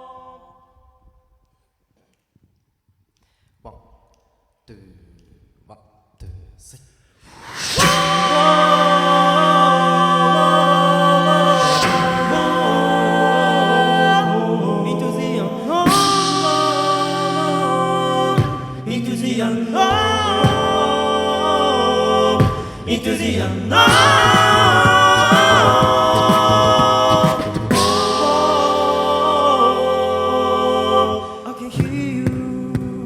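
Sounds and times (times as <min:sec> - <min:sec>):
male a cappella group singing: 0:07.3 - 0:33.0.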